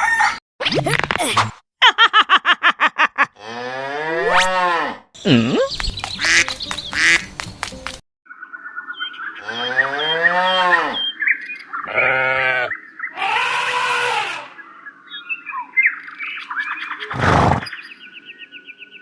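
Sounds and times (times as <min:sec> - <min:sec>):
birds chirping: 0:05.2 - 0:07.5.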